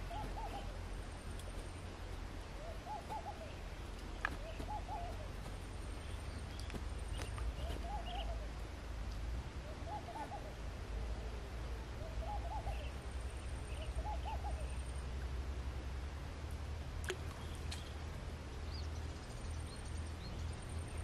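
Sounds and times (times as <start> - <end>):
bird hooting call: 0.0 - 0.8, 2.6 - 3.6, 4.3 - 5.4, 7.5 - 8.5, 9.6 - 13.0, 13.6 - 15.0
faint bird chirps: 0.0 - 1.9, 2.5 - 8.6, 9.6 - 15.2, 17.1 - 21.0
low steady rumble: 0.0 - 21.0.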